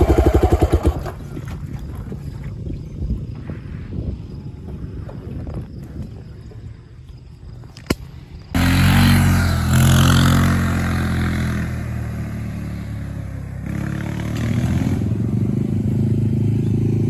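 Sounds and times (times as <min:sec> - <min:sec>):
dirt bike engine revving: 0:00.0 - 0:01.2, 0:08.6 - 0:17.0.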